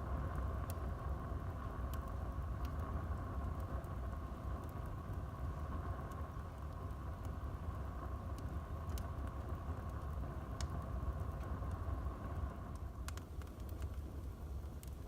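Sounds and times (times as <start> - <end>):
faint fire crackles: 0.0 - 15.0
fire burning low rush: 0.0 - 15.0.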